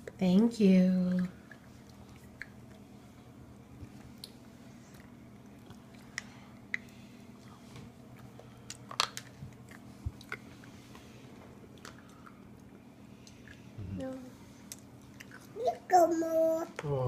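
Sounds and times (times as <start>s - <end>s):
people crunching and chewing: 3.8s - 13.8s, 14.6s - 15.6s.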